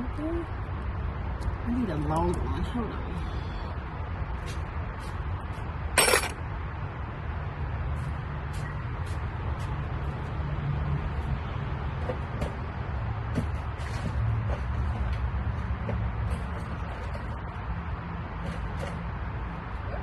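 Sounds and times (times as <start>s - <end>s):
hand tools clattering: 6.0s - 6.4s.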